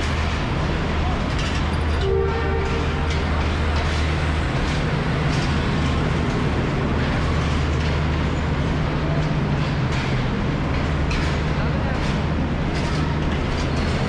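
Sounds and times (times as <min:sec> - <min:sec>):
locomotive engine humming: 0:00.0 - 0:14.0
railway station noise: 0:00.0 - 0:14.0.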